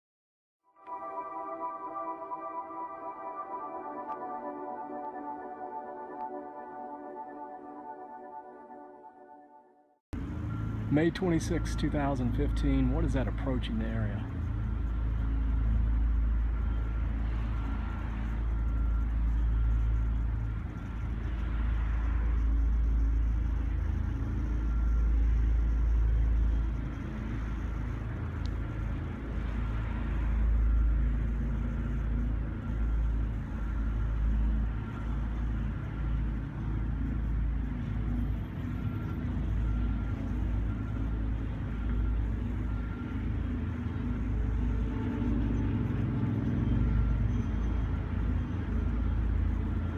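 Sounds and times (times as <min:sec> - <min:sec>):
faint steady high tone: 0:00.7 - 0:49.9
deep continuous rumble: 0:10.2 - 0:49.9.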